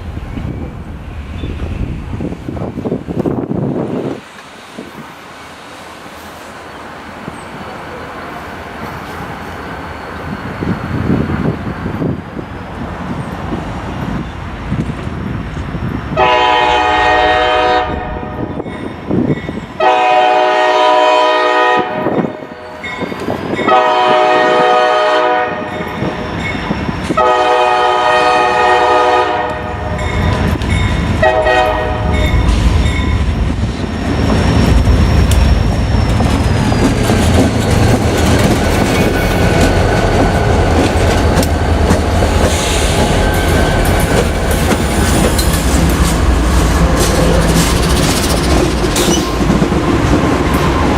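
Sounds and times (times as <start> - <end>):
train rumbling past: 0.0 - 50.9
locomotive horn blasts: 16.2 - 18.5, 19.8 - 22.6, 23.6 - 25.8, 27.2 - 30.1, 31.2 - 32.5.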